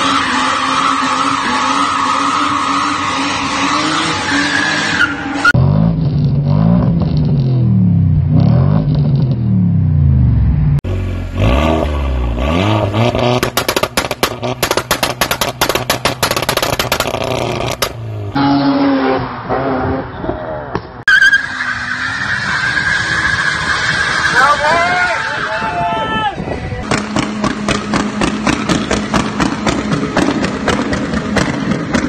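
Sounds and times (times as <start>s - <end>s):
car engine revving: 0.0s - 20.7s, 26.8s - 32.0s
exhaust pops and bangs: 13.1s - 18.0s, 26.8s - 32.0s.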